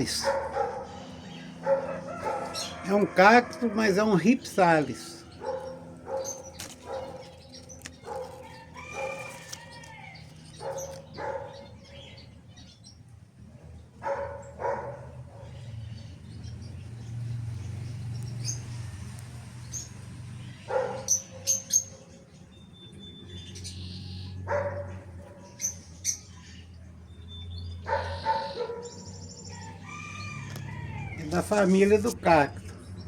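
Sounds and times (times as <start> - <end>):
dog barking: 0.0 - 2.8, 5.3 - 9.4, 10.5 - 11.8, 14.0 - 15.6, 20.7 - 21.6, 24.4 - 25.6, 27.8 - 29.1.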